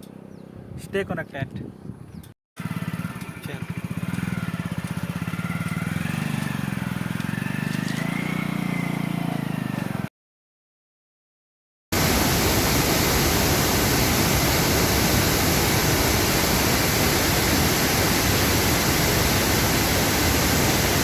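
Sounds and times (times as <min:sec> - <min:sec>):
waterfall rushing: 0:12.0 - 0:21.0.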